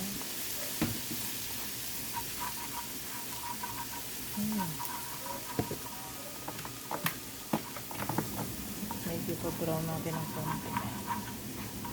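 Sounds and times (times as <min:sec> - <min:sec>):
garlic sizzling in a pan: 0:00.0 - 0:11.9
utensil clicking against pan: 0:06.5 - 0:11.9.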